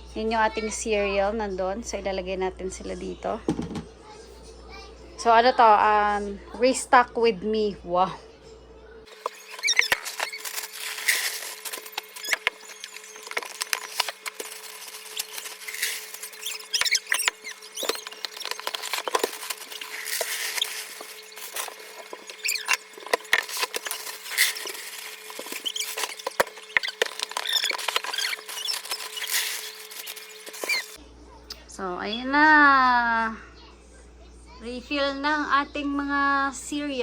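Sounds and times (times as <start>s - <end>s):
dry cereal pouring: 9.1s - 31.0s
packaging rustling: 9.1s - 31.0s.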